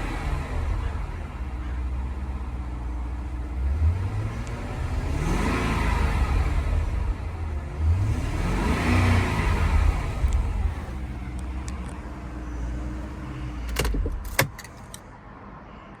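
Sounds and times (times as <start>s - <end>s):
car engine revving and idling: 0.0s - 15.0s
sharp clicks and knocks: 13.7s - 15.0s.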